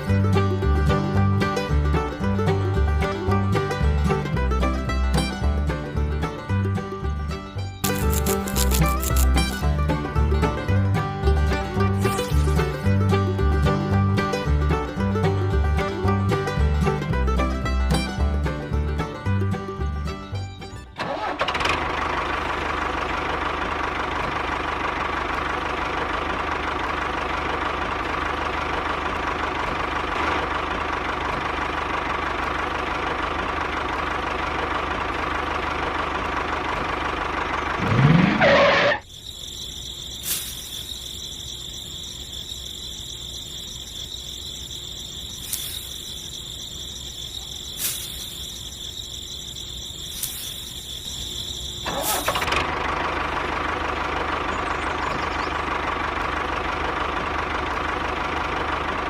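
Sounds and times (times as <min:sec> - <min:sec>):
high-pitched steady whine: 0:07.8 - 0:09.6, 0:38.4 - 0:52.4
sharp clicks: 0:07.8 - 0:09.6
small electric motor humming: 0:07.8 - 0:09.6.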